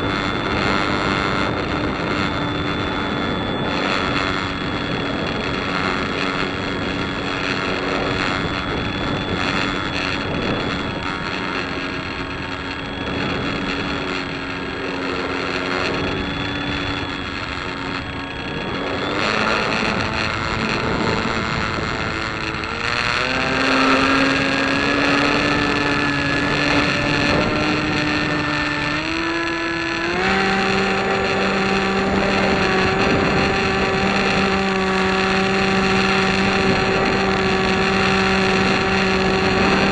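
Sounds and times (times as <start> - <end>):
piston engine running: 0.0 - 39.9
wind noise: 0.0 - 39.9.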